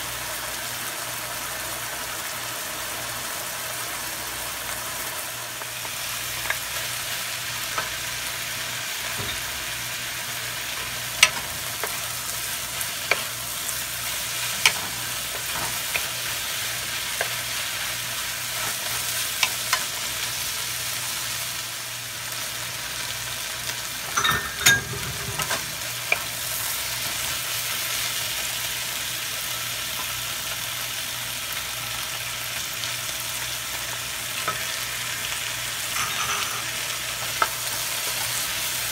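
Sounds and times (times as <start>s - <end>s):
food sizzling in a wok: 0.0s - 38.9s.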